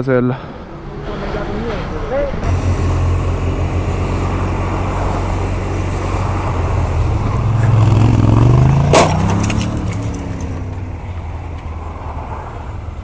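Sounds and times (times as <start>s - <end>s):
engine revving with rising whine: 2.4s - 13.0s
sharp bang: 8.8s - 9.7s.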